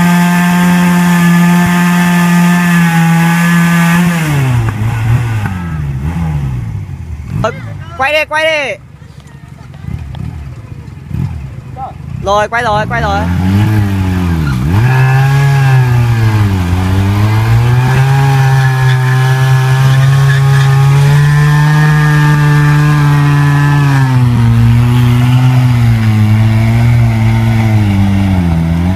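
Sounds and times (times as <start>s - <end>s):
motorcycle engine revving high: 0.0s - 8.2s, 9.9s - 28.9s
tyre spinning on asphalt: 13.4s - 28.9s.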